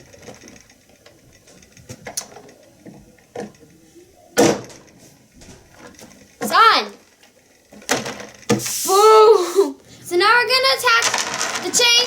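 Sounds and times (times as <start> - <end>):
plastic toy clicks and knocks: 11.0 - 12.0.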